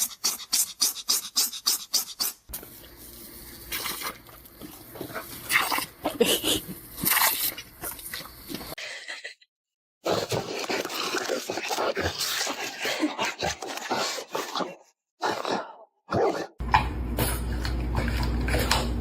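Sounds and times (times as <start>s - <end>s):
dog making irregular sounds: 0.0s - 2.5s.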